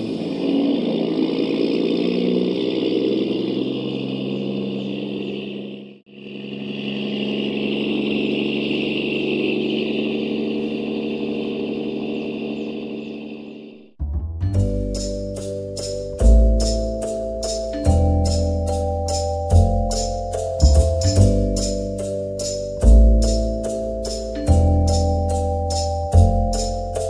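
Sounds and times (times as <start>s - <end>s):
toy truck motor and gear whine: 0.0s - 13.8s.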